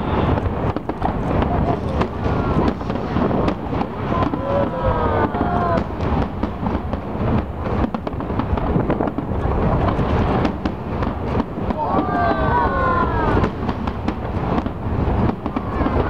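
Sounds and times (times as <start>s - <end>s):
firework bursts and crackles: 0.0s - 16.0s.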